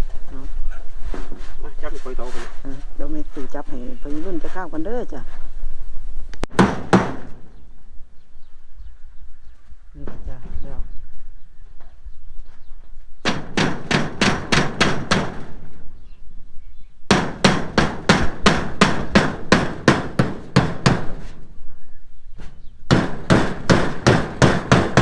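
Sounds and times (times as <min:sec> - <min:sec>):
hammer driving nails: 0:06.5 - 0:07.4, 0:13.2 - 0:15.6, 0:17.1 - 0:21.3, 0:22.9 - 0:25.0.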